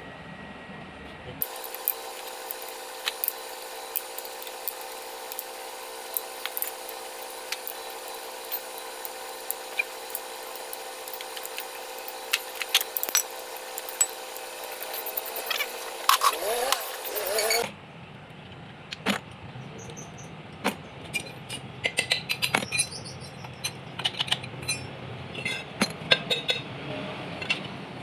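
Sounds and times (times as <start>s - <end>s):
steady mechanical hum: 0.0s - 21.8s.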